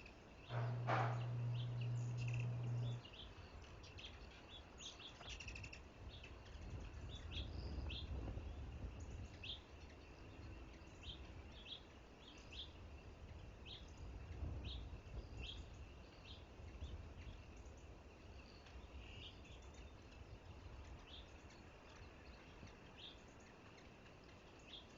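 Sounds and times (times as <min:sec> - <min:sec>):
faint bird chirps: 0:00.0 - 0:24.9
wind noise rumble: 0:06.0 - 0:09.5, 0:12.9 - 0:15.9.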